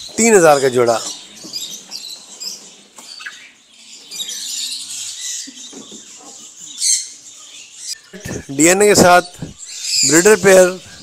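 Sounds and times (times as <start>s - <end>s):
birds chirping and twittering: 0.0s - 11.0s.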